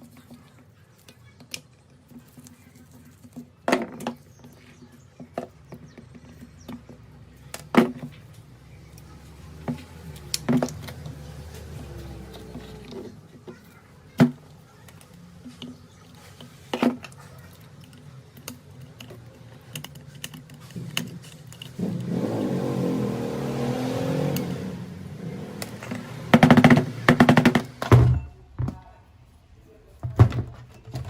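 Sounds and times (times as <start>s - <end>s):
sharp clicks and knocks: 17.8s - 22.2s, 25.6s - 28.8s.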